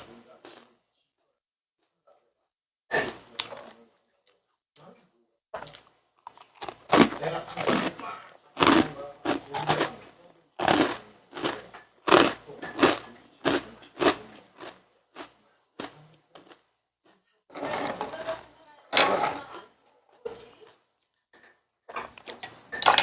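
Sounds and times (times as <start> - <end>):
chewing and crunching food: 0.3 - 0.7, 5.6 - 16.7.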